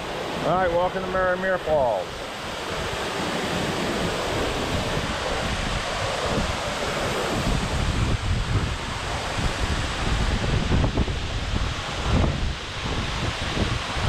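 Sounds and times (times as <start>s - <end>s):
steady rushing noise: 0.0s - 14.0s
wind rumbling on microphone: 0.0s - 14.0s.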